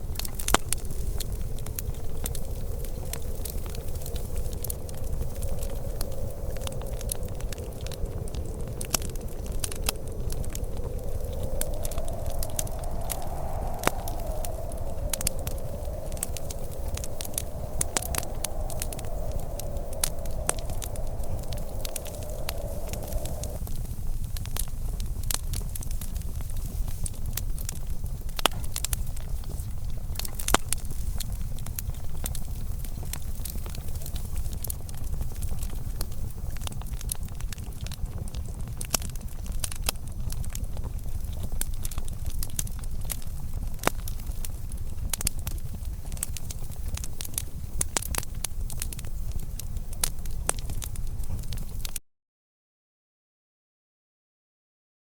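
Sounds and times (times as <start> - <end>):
low rumble: 0.0 - 23.6
wood fire crackling: 0.0 - 52.0.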